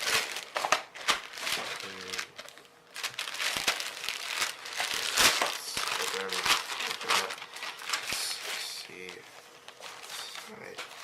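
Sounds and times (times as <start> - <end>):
packaging bag crinkling: 0.0 - 11.0.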